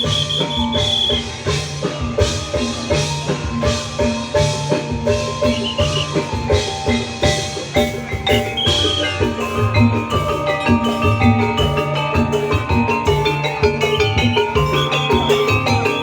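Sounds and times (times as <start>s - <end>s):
high trilling whistle: 0.0s - 1.6s, 5.4s - 6.4s, 8.5s - 9.3s
bamboo percussion playing: 0.0s - 16.0s
drums: 0.0s - 16.0s.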